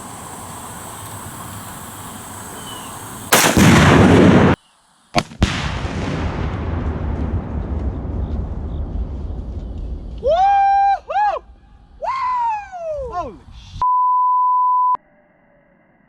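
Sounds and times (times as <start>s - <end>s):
sharp crack: 3.2s - 11.9s
explosion blast: 3.3s - 4.6s, 5.2s - 12.0s
gunshot: 3.3s - 4.6s, 5.2s - 10.2s
loud low rumble: 5.4s - 13.8s.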